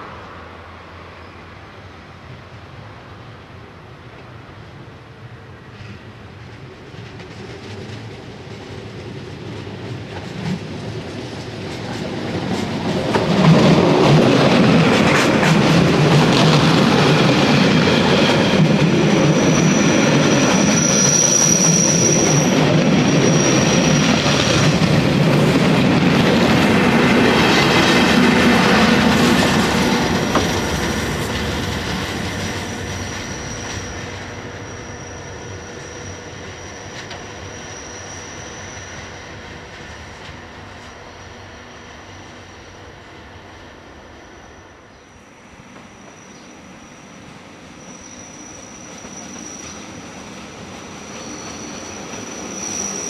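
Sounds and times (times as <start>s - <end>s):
electric train passing: 6.5s - 53.0s
high wheel squeal: 18.4s - 25.3s, 27.3s - 39.6s, 45.9s - 53.0s.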